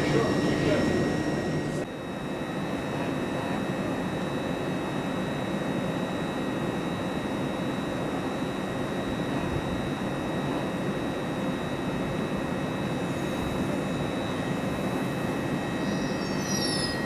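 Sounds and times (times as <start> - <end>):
train engine rumble: 0.0 - 1.9, 9.2 - 17.0
high-pitched whine: 0.0 - 17.0.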